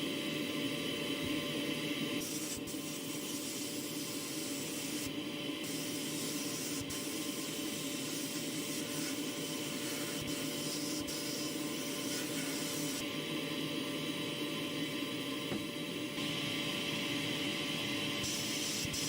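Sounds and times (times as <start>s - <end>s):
steady hiss: 2.2s - 13.0s.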